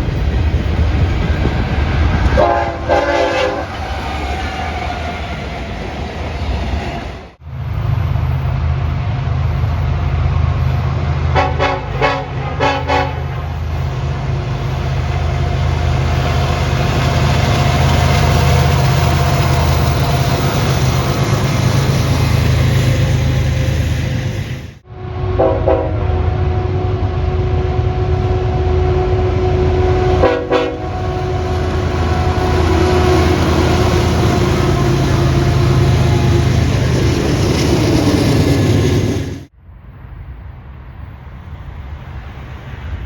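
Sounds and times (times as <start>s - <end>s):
diesel locomotive engine drone: 0.0s - 43.0s
train horn blasts: 2.3s - 3.9s, 11.2s - 13.8s, 24.8s - 36.7s.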